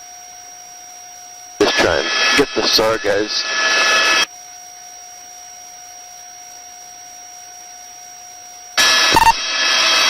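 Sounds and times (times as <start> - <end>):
electrical hum with high whine: 0.0 - 10.0
faint radio hiss: 1.6 - 4.3
loud helicopter cabin noise: 1.6 - 4.3.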